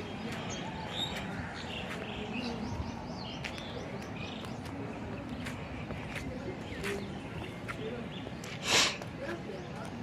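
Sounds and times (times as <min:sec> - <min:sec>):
small birds chirping: 0:00.0 - 0:10.0
steady background noise: 0:00.0 - 0:10.0.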